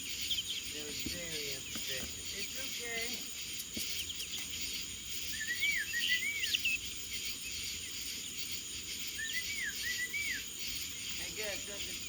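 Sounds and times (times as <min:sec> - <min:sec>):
bird chirping: 0:00.0 - 0:12.0
insects trilling: 0:00.0 - 0:12.0.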